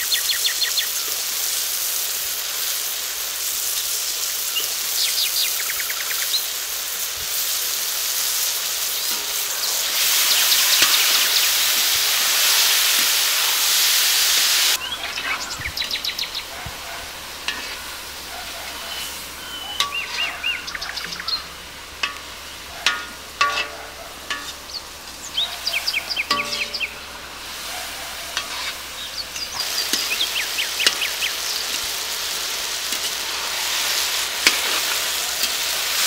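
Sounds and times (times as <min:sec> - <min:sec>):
vegetables sizzling in oil: 0:00.0 - 0:36.0
birds chirping: 0:04.1 - 0:06.6, 0:08.7 - 0:12.2, 0:14.6 - 0:35.8
metal ladle clicking against pan: 0:22.0 - 0:24.8, 0:26.3 - 0:27.0, 0:28.4 - 0:28.8.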